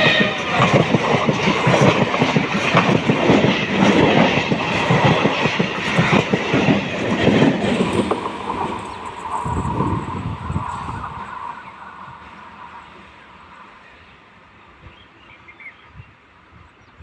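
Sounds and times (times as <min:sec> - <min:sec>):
train wheels clattering over rail joints: 0:00.0 - 0:11.4.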